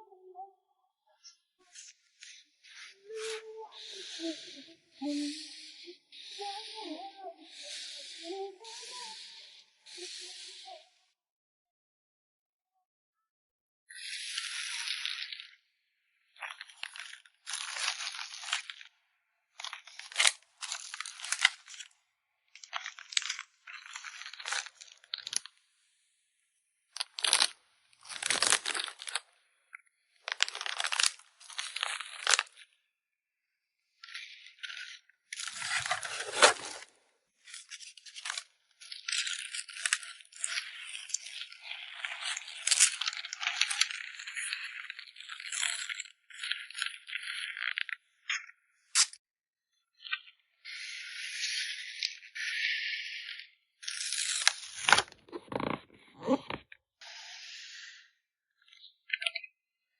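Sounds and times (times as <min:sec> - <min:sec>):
plastic packaging crinkling: 0:16.4 - 0:18.9, 0:19.6 - 0:22.0, 0:22.6 - 0:25.6, 0:27.0 - 0:29.3, 0:30.2 - 0:32.6, 0:34.6 - 0:48.0, 0:53.8 - 0:55.9.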